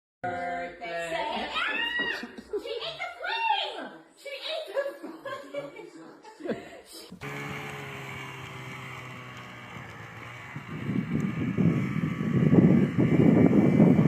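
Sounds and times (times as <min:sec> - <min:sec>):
motor humming: 0:07.2 - 0:14.0.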